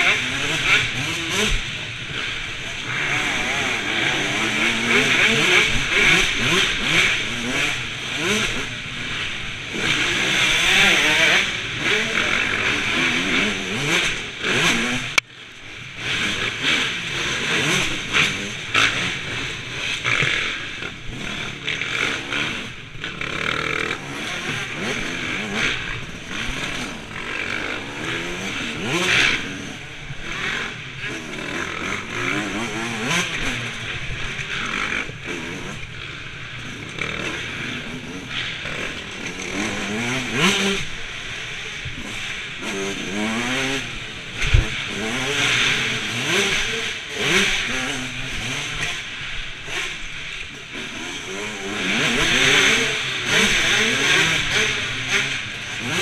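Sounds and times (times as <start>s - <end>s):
motocross bike engines revving: 0.0s - 56.0s.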